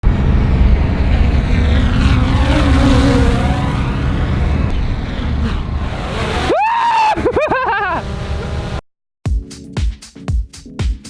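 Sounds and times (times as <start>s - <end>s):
vehicle passing close: 0.0s - 8.8s.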